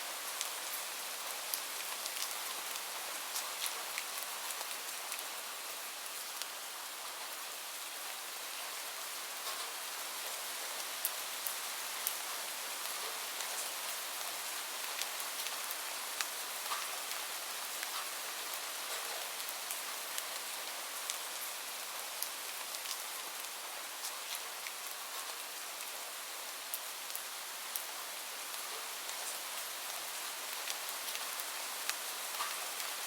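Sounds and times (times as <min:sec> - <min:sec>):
steady rain hiss: 0:00.0 - 0:33.0.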